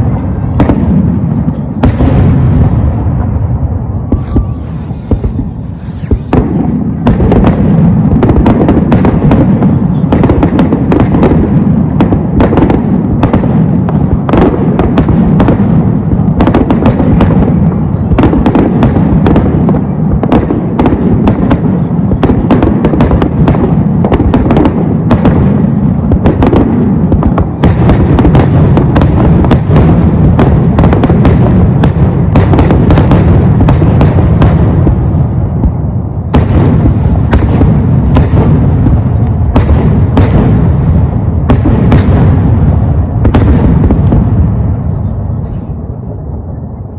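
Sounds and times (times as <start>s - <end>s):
low rumble: 0.0s - 7.1s
fireworks bursts and crackling: 0.0s - 46.9s.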